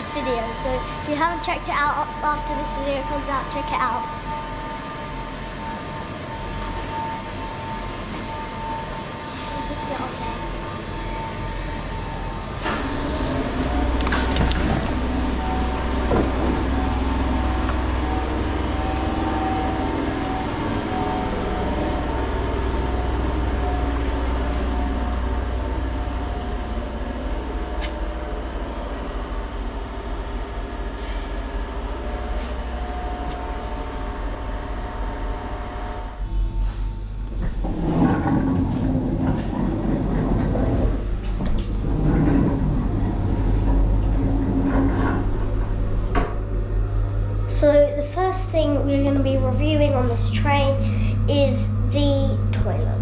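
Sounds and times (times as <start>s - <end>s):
train interior rumble: 0.0s - 53.0s
traction motor whine: 2.1s - 47.8s, 48.5s - 53.0s.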